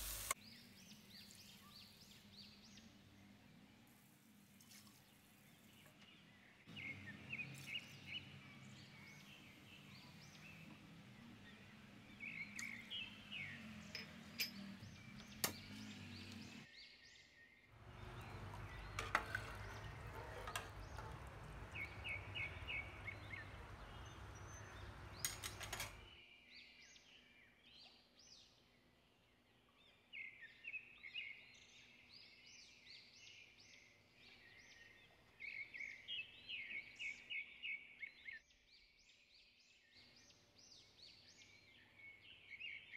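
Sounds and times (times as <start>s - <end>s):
steady hiss: 0.0s - 0.4s
small birds chirping: 0.0s - 26.2s
metal ladle clinking on pot: 17.8s - 22.6s.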